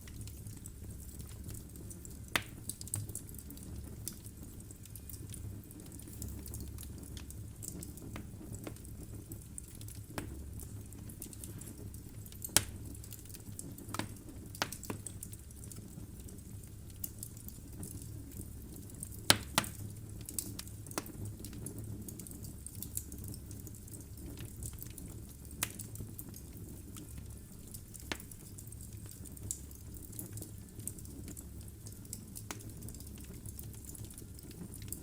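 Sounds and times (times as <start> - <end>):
logs crackling and popping: 0.0 - 35.0
low rumble of flames: 0.0 - 35.0.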